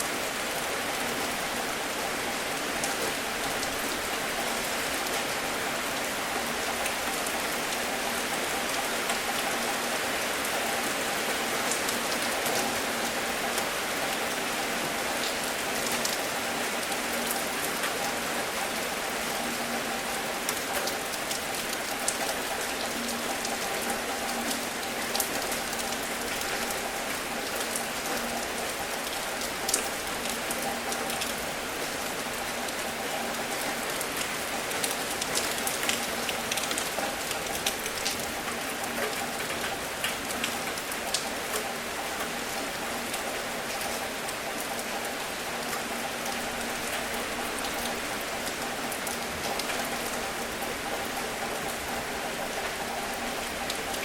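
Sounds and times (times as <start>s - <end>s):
steady rain hiss: 0.0s - 54.0s
raindrop ticks: 20.4s - 54.0s.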